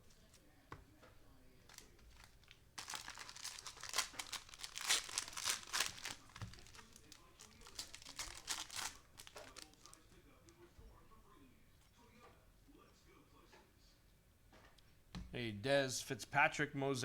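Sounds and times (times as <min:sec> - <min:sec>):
plastic wrapper crinkling: 0:01.6 - 0:10.1.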